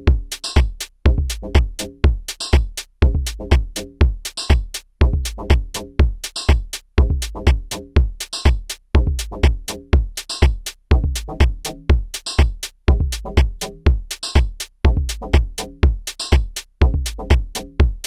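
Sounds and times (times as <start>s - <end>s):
hi-hat and clap hits: 0.0s - 18.0s
kick drum: 0.0s - 18.0s
pitched bass line: 1.1s - 2.2s, 3.0s - 4.2s, 5.0s - 6.1s, 7.0s - 8.1s, 9.0s - 10.1s, 10.9s - 12.1s, 12.9s - 14.0s, 14.9s - 16.0s, 16.8s - 18.0s.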